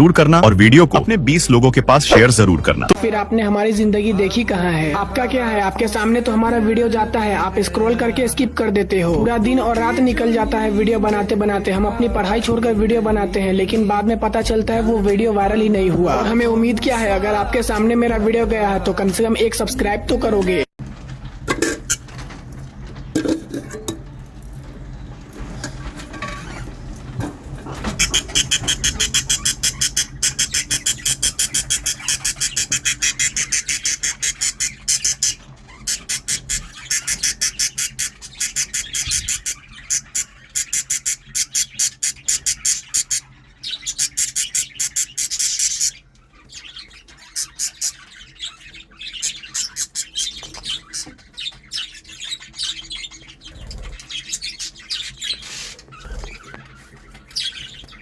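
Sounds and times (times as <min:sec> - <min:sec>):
lovebirds chirping: 0:21.0 - 0:58.0.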